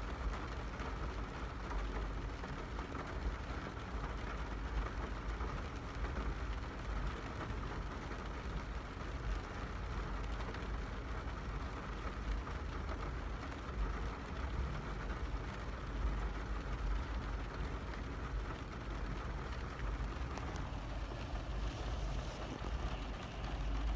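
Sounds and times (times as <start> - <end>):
car engine rumble: 10.9 - 23.9.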